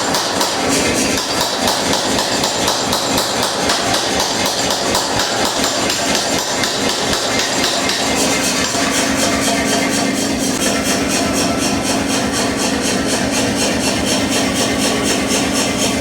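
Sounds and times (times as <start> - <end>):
hammer blows on hot steel: 0.0 - 16.0.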